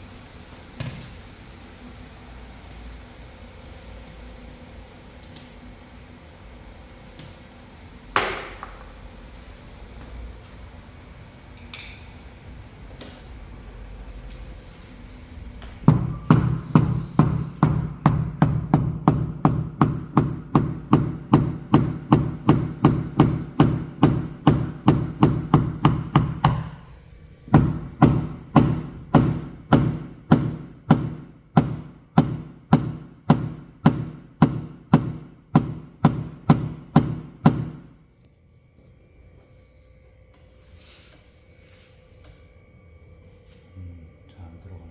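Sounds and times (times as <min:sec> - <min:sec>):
hammer tapping metal hood: 0:15.9 - 0:26.8, 0:27.5 - 0:37.8.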